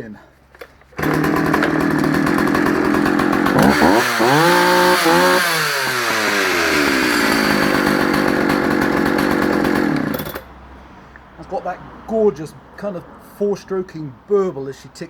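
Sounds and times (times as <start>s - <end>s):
chainsaw idling and revving: 1.0s - 10.5s.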